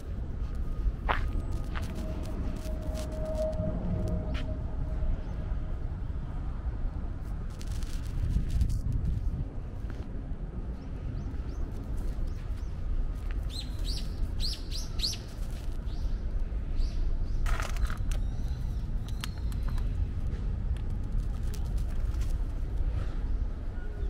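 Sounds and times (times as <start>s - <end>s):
low city rumble: 0.0s - 24.0s
small birds chirping: 10.8s - 20.1s.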